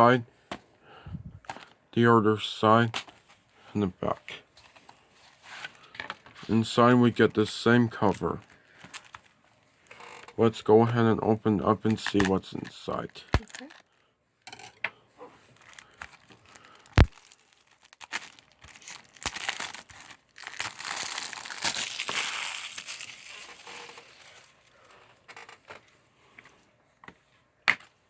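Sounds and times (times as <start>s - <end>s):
plastic packaging crinkling: 7.9s - 10.2s, 11.8s - 13.9s, 15.4s - 25.0s.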